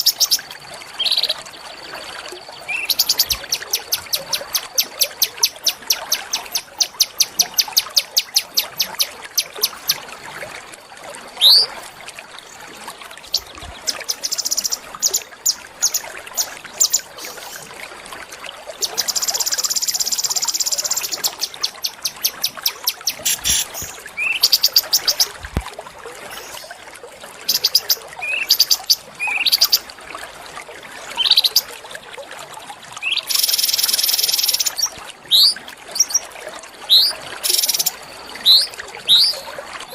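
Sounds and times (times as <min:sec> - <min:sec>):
small songbird singing: 0:02.6 - 0:10.0, 0:11.4 - 0:11.7, 0:13.3 - 0:17.0, 0:18.9 - 0:25.3, 0:36.9 - 0:39.5.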